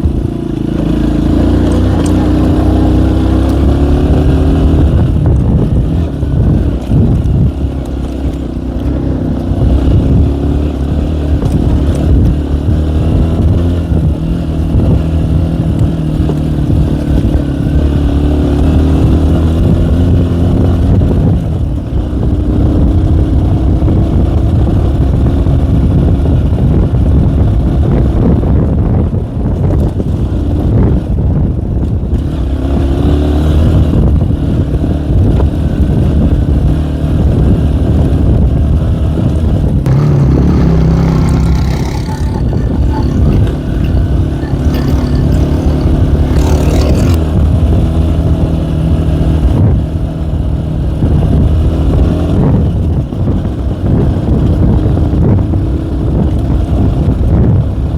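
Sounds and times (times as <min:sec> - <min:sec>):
two-stroke moped engine revving: 0:00.0 - 0:20.8, 0:39.8 - 0:49.5.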